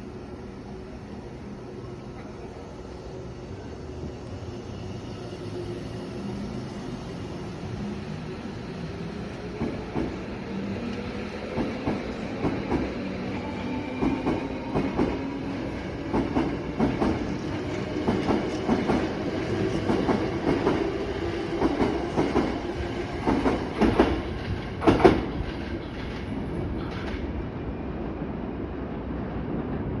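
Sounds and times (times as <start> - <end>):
train low rumble: 0.0 - 30.0
train wheels clicking over rail joints: 23.2 - 27.4.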